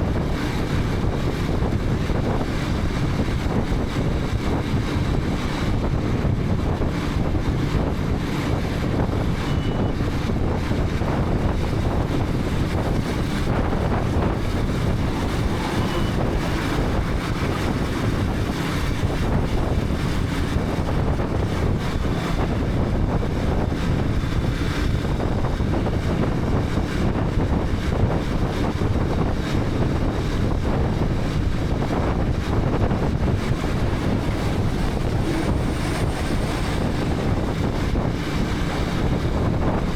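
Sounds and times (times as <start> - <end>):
wind rushing over microphone: 0.0 - 39.9
motorcycle engine running: 10.5 - 24.2, 30.9 - 39.9.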